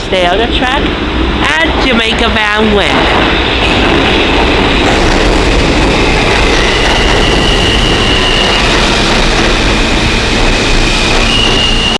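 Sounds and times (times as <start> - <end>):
subway train rail noise: 0.0 - 11.9
high thin wheel squeal: 6.0 - 11.9.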